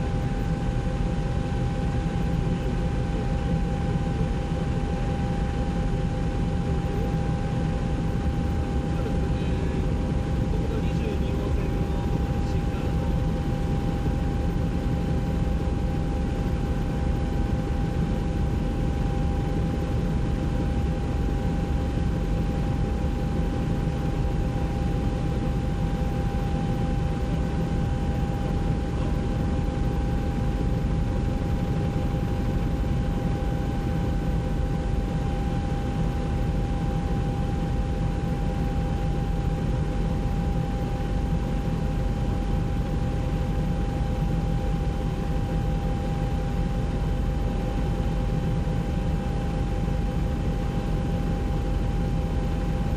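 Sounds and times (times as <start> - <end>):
helicopter drone from cabin: 0.0 - 52.9
steady high whine: 0.0 - 52.9.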